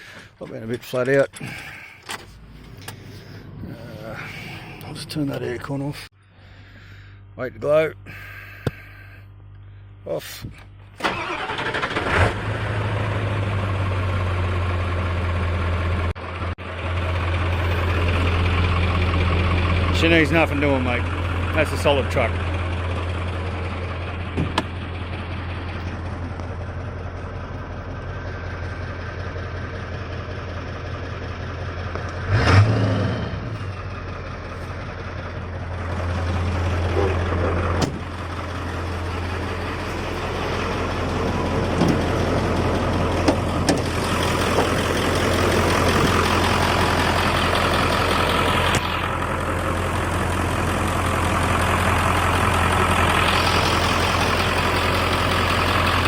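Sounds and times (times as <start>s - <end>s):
diesel truck engine idling: 0.0s - 11.9s, 12.5s - 56.0s.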